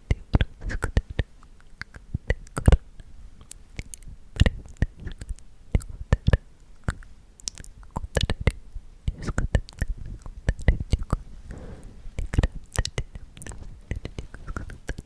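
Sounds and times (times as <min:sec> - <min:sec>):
wet mouth clicks and smacks: 0:03.4 - 0:11.2.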